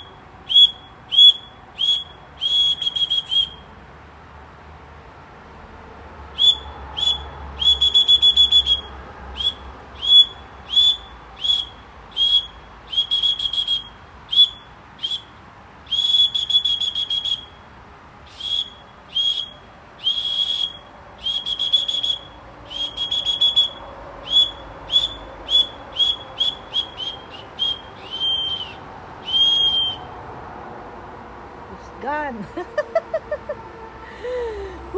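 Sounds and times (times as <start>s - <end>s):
high whistle chirps and trills: 0.0s - 3.7s, 6.3s - 30.2s.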